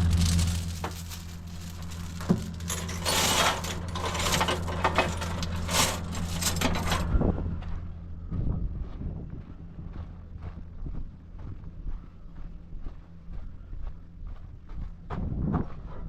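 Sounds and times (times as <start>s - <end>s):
rattling and clinking: 0.0s - 7.2s
truck engine low drone: 0.0s - 16.0s.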